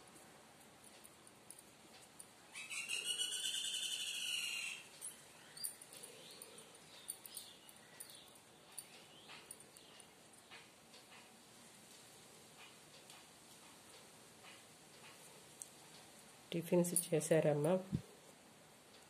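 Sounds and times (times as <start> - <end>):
bird pulsing call: 2.6 - 4.9.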